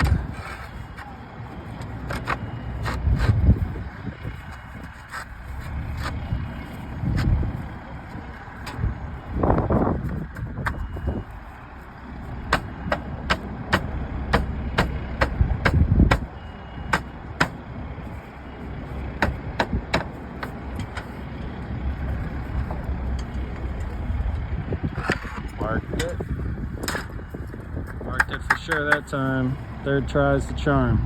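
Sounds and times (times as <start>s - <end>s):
steady low rumble: 0.0s - 31.0s
hammer tapping on metal: 12.5s - 16.3s.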